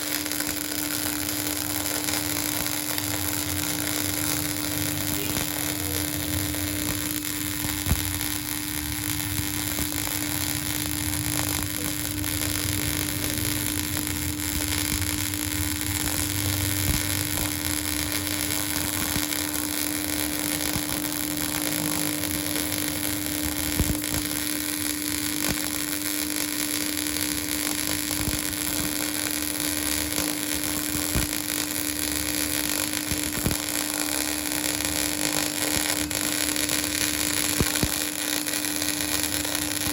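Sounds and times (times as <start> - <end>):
sharp welding pops: 0.0 - 39.9
welding arc hissing: 0.0 - 39.9
constant hum: 0.1 - 26.0.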